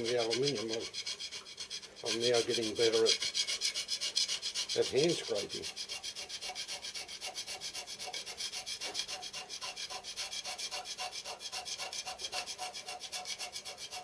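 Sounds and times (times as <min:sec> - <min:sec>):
hand scraper shaving steel plate: 0:00.0 - 0:14.0.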